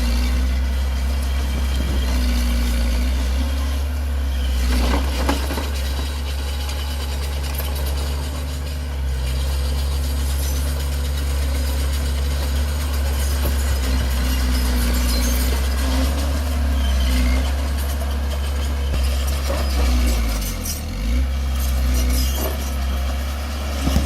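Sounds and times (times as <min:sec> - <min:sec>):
diesel engine humming: 0:00.0 - 0:24.0.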